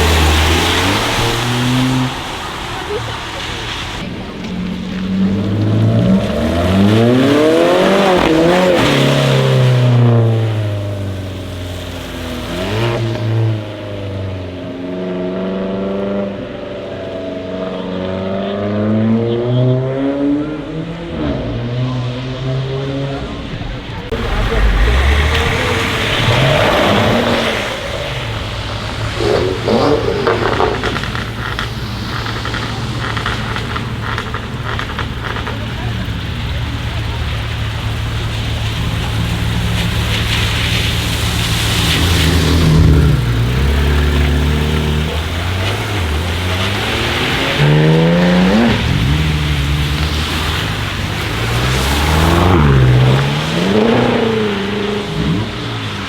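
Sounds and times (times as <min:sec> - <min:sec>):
another engine revving: 0:00.0 - 0:14.4, 0:17.7 - 0:56.0
car engine accelerating: 0:00.0 - 0:56.0.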